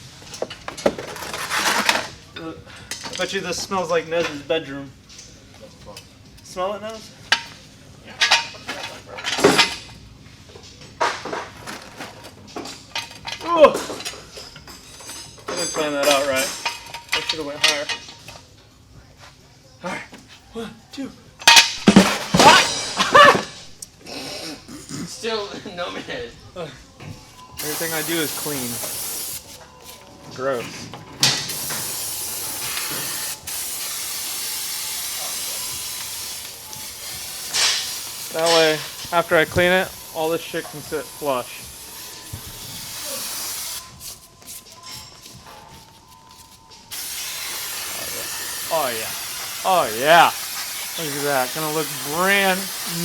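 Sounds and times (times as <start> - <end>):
metal parts and tools clanking: 0.3 - 2.2, 7.3 - 10.0, 10.7 - 18.4, 21.4 - 23.8
spraying hiss: 27.6 - 29.6, 31.4 - 45.2, 46.0 - 53.0.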